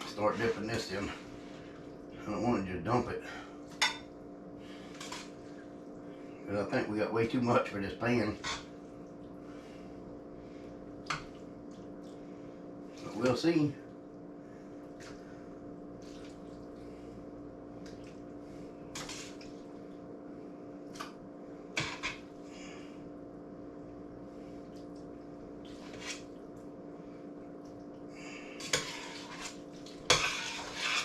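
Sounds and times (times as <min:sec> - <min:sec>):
steady hum: 0:00.0 - 0:31.0
spoon scraping a metal pot: 0:28.6 - 0:31.0.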